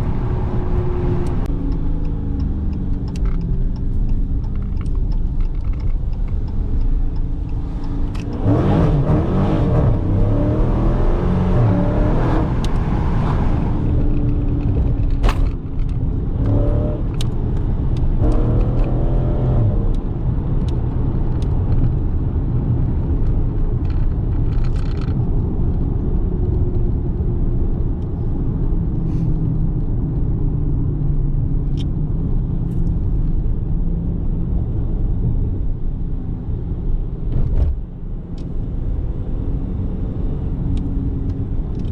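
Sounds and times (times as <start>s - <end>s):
car engine revving: 7.4s - 15.0s.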